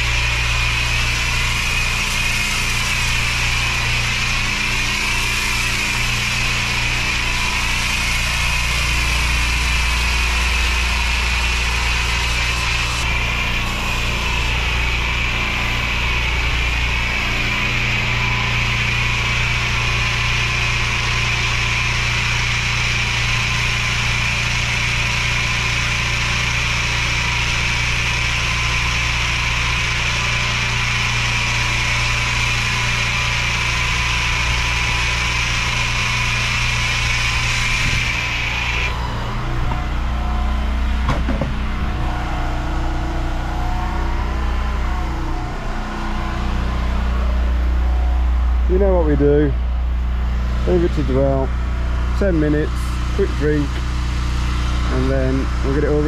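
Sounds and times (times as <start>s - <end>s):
water spray hissing: 0.0s - 38.9s
pressure washer engine running: 0.0s - 56.0s.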